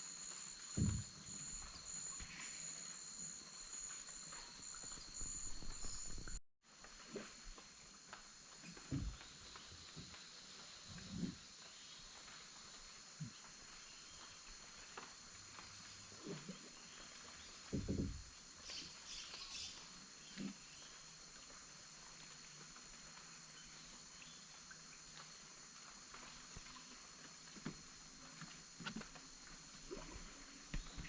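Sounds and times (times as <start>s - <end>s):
canoe knocks and splashes: 0.7s - 1.7s, 17.6s - 18.8s.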